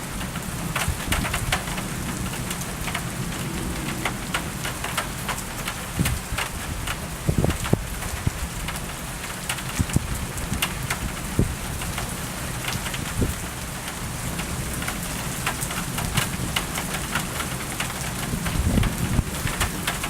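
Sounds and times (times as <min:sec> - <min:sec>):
rain drops ticking: 0:00.0 - 0:20.0
low rumble: 0:02.3 - 0:06.6.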